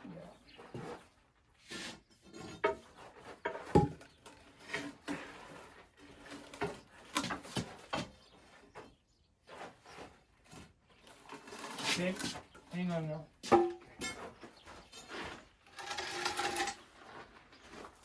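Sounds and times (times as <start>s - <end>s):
wooden knocks and creaks: 2.2s - 5.5s.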